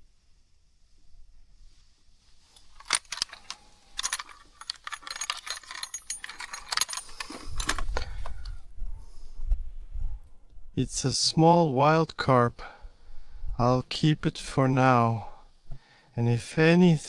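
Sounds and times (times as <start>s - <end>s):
fishing tackle clicking and rattling: 2.6s - 8.6s.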